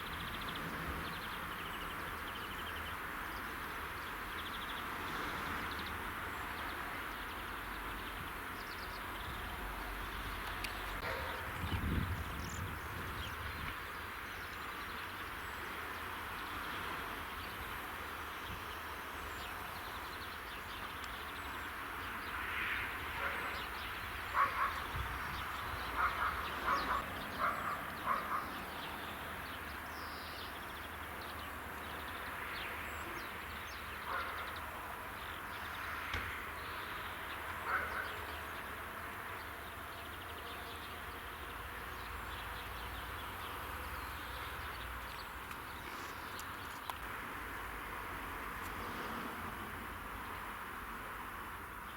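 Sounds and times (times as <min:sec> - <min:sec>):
bird calls: 0:23.2 - 0:31.0, 0:31.8 - 0:38.7.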